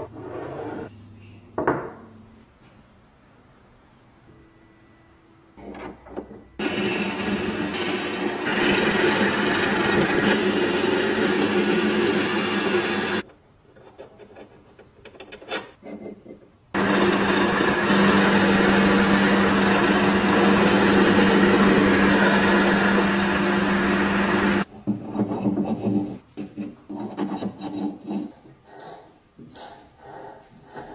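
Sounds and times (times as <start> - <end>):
power tool grinding metal: 6.6 - 13.2, 16.8 - 24.7.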